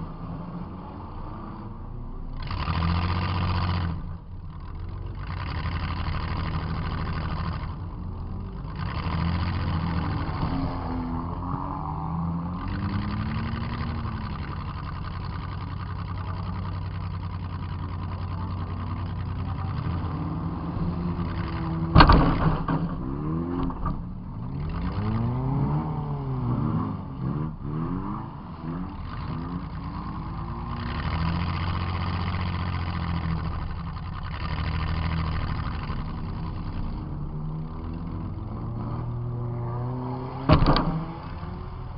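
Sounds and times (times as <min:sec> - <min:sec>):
car engine revving: 0:00.0 - 0:41.9
car crash: 0:21.2 - 0:24.1, 0:40.4 - 0:41.4.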